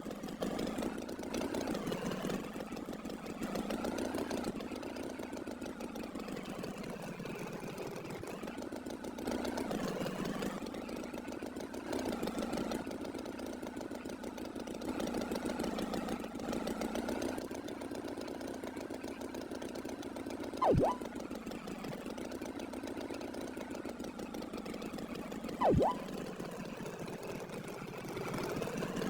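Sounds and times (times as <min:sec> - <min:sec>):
loud swooping sound: 0:20.6 - 0:21.0, 0:25.6 - 0:26.0.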